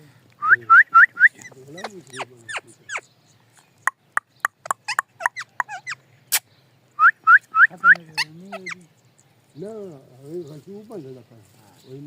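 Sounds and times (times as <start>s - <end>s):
parrot chirping: 1.0s - 3.1s, 3.8s - 6.4s, 7.0s - 9.3s
parrot squawking: 1.2s - 3.1s, 4.6s - 6.4s, 7.6s - 8.9s.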